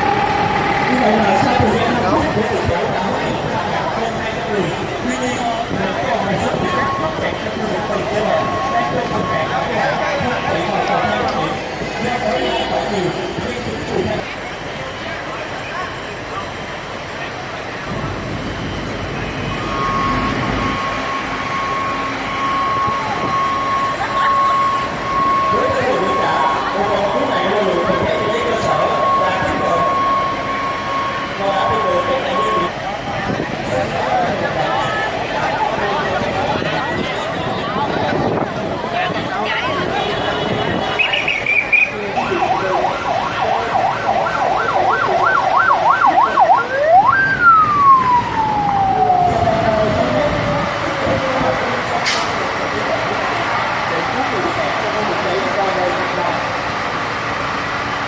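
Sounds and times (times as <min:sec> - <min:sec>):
steady high-pitched tone: 0:00.0 - 0:14.3, 0:17.3 - 0:32.9
fire truck siren: 0:00.0 - 0:58.0
heavy vehicle engines running: 0:00.0 - 0:58.0.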